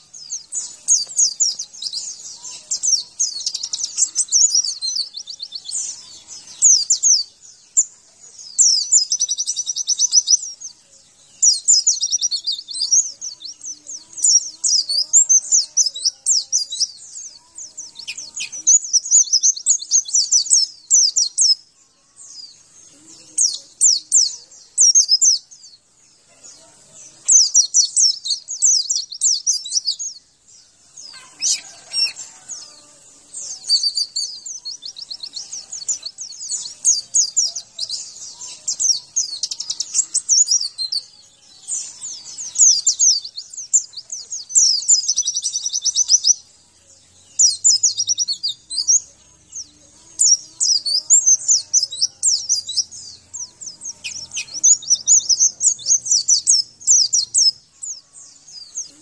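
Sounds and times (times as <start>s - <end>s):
bird twittering song: 0.0s - 59.0s.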